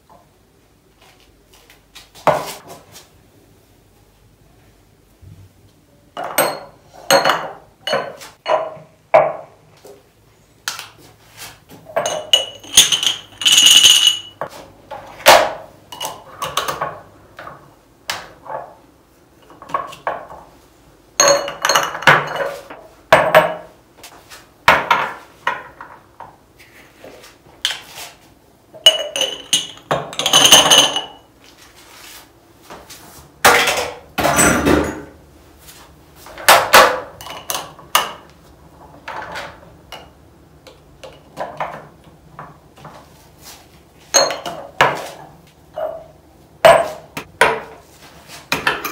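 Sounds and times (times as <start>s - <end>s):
glass jars clinking and knocking: 6.2s - 9.5s, 11.9s - 14.5s, 15.9s - 17.0s, 21.2s - 23.7s, 28.8s - 31.3s, 36.5s - 38.2s, 44.1s - 45.0s, 45.7s - 47.7s, 48.5s - 48.9s.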